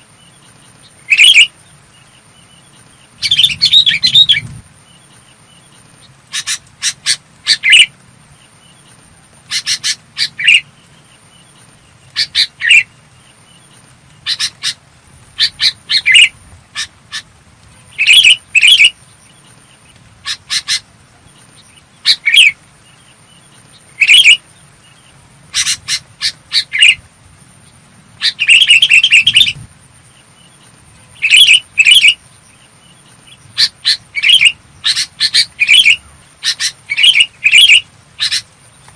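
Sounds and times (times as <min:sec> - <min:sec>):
bulbul singing: 0:00.0 - 0:27.0, 0:27.6 - 0:38.9
faint high whine: 0:00.0 - 0:38.9.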